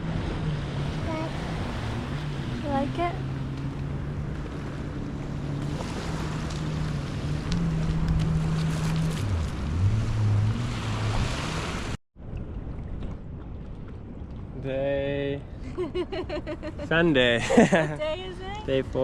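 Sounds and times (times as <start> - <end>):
jet ski engine running: 0.0 - 12.0
wind: 0.0 - 19.0.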